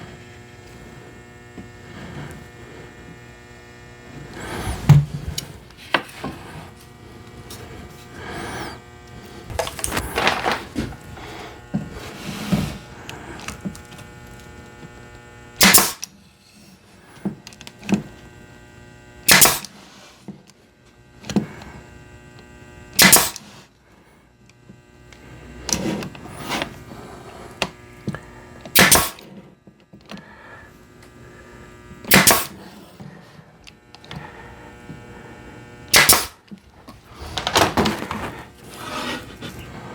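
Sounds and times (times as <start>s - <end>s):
electrical hum: 0.0s - 39.9s
wood being handled: 4.3s - 14.5s
nail gun firing: 15.6s - 16.1s, 19.3s - 19.8s, 23.0s - 23.5s, 28.7s - 29.3s, 32.1s - 32.6s, 35.9s - 36.4s.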